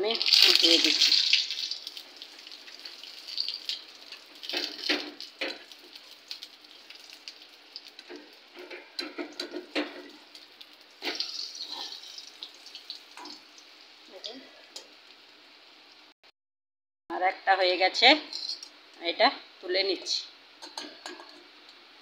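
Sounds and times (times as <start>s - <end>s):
batter sizzling and crackling in oil: 0.0s - 16.1s.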